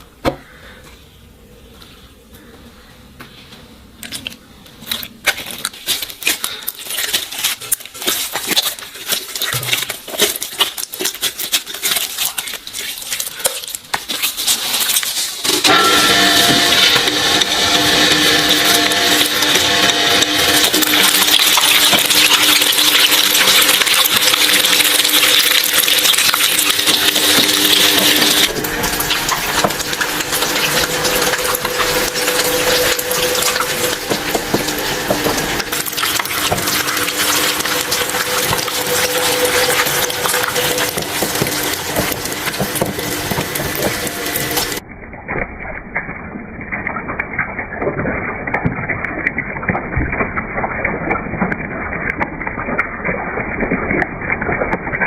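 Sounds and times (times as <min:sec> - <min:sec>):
shredder crunching objects: 0:05.2 - 0:44.8
motor hum: 0:15.5 - 0:47.6.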